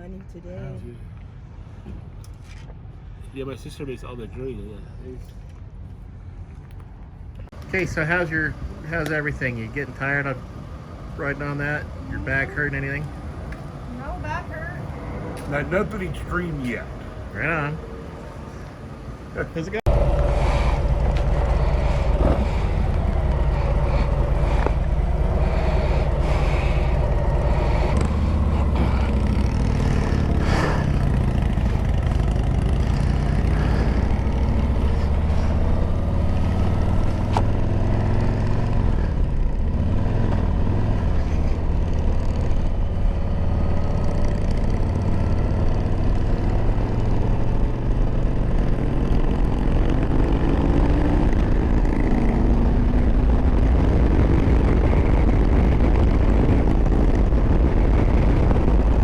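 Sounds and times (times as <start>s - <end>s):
motorcycle engine running: 19.6s - 59.0s.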